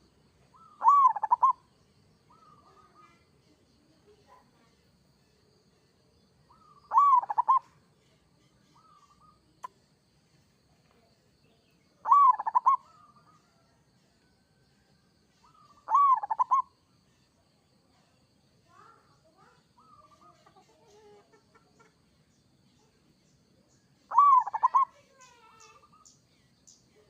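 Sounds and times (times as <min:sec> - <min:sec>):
dove cooing: 0:00.6 - 0:01.6, 0:06.5 - 0:07.6, 0:12.0 - 0:13.6, 0:15.4 - 0:16.7, 0:24.1 - 0:25.0.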